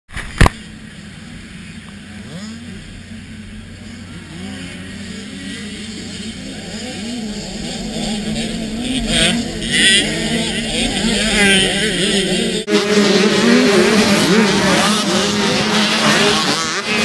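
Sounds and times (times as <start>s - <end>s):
dirt bike engines revving: 0.2s - 17.0s.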